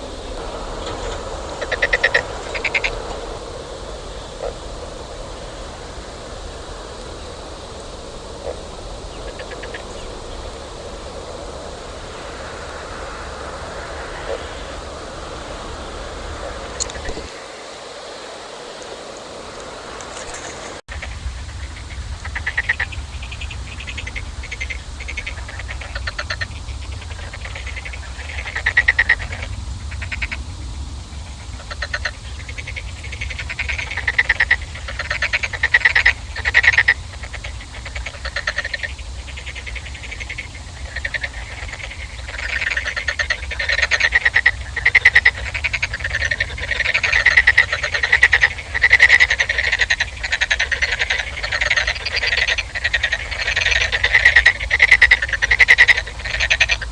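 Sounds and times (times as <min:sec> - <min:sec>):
low rumble: 0:00.0 - 0:17.4
frogs croaking: 0:00.0 - 0:56.9.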